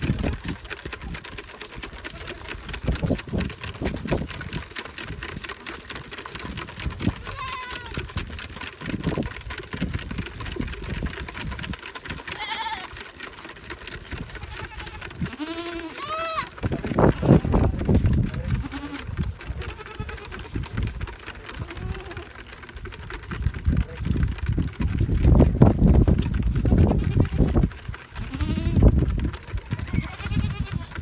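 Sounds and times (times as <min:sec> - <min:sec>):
goats bleating: 0:01.9 - 0:02.8, 0:07.1 - 0:08.1, 0:12.2 - 0:13.1, 0:14.2 - 0:17.7, 0:18.5 - 0:20.6, 0:21.5 - 0:22.4, 0:26.6 - 0:27.6, 0:28.2 - 0:29.0, 0:29.8 - 0:31.0.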